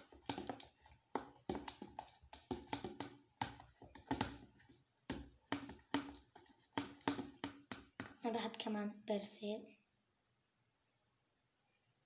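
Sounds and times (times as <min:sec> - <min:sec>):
utensil knocking and scraping in bowl: 0:00.0 - 0:08.2.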